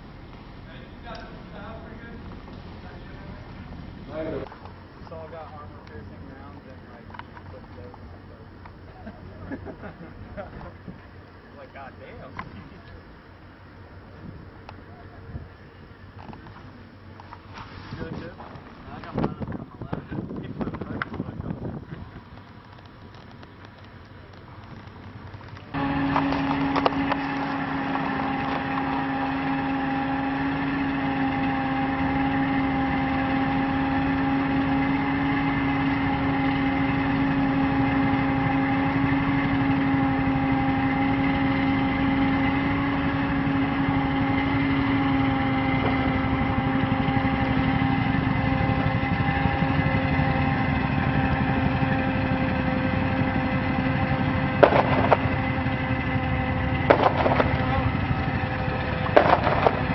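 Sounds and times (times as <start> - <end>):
constant whine: 0.0 - 59.9
vehicle engine running: 0.0 - 59.9.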